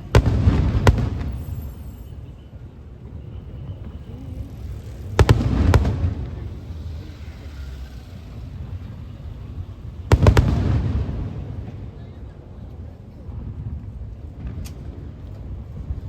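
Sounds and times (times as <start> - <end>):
fireworks bangs: 0.0 - 2.4, 3.0 - 12.2.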